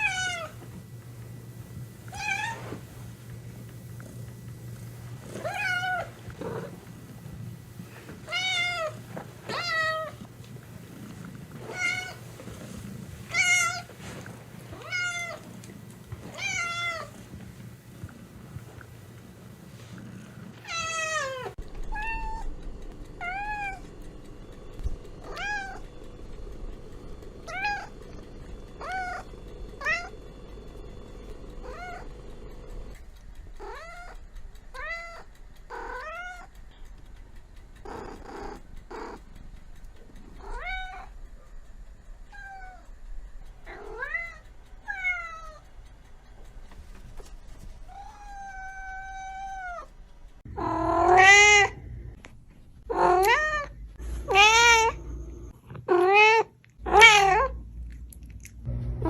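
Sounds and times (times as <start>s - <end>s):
cat meowing: 5.4s - 6.6s, 20.6s - 22.5s, 50.6s - 51.8s, 52.9s - 55.0s, 55.9s - 57.6s.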